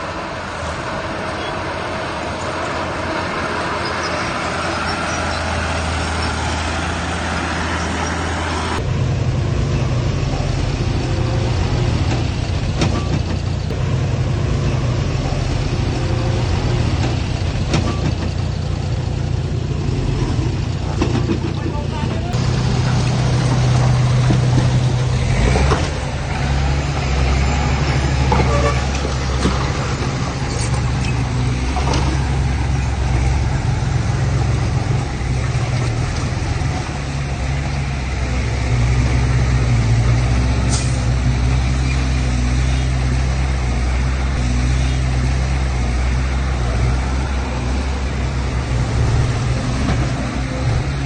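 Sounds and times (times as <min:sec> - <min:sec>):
heavy diesel engine running: 0:00.0 - 0:51.0.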